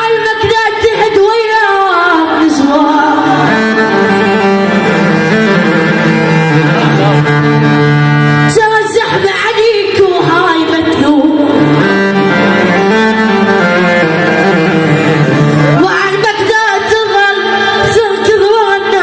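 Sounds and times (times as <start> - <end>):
person singing: 2.5 - 5.9, 6.6 - 7.4
long held chord notes: 2.9 - 8.6, 11.3 - 16.5.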